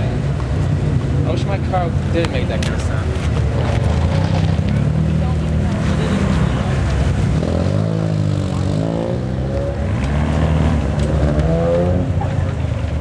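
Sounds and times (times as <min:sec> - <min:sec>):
car engine accelerating: 0:02.7 - 0:13.0.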